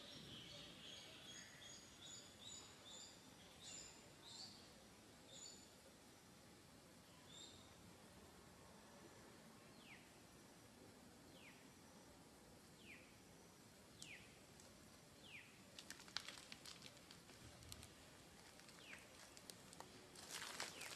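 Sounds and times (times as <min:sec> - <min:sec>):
faint crackling clicks: 0:15.7 - 0:20.9.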